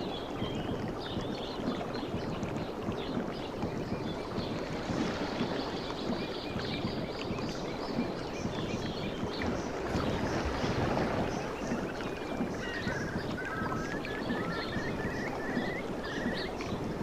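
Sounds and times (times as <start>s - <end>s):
water lapping and splashing: 0.0s - 17.0s
faint bird chirps: 5.4s - 16.8s.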